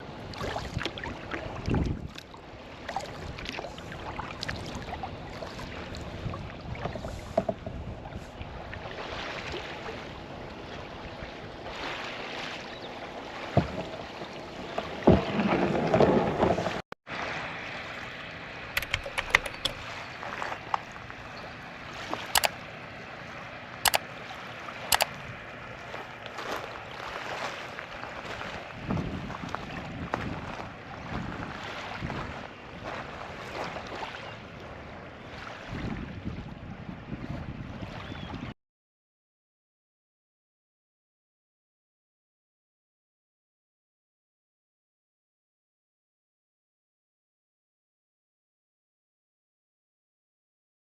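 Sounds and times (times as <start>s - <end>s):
water sloshing against hull: 0.0s - 38.5s
paddle strokes splashing: 0.1s - 10.8s, 18.8s - 35.7s.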